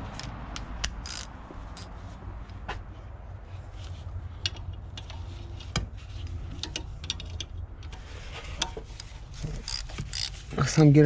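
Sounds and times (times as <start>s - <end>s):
ratchet wrench clicking: 0.1s - 1.9s, 9.0s - 10.8s.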